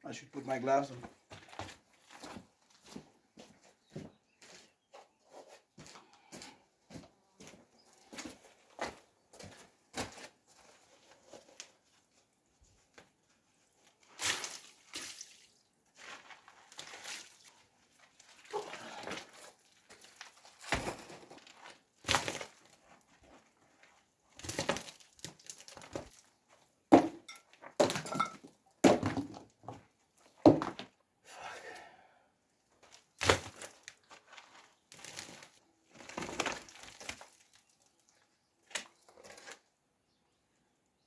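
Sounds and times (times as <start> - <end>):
stones scraping and knocking: 24.4 - 26.3, 32.8 - 37.7.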